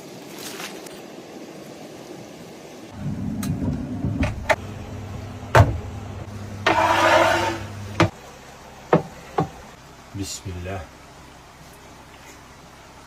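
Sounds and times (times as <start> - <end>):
motor humming: 3.0 - 8.1.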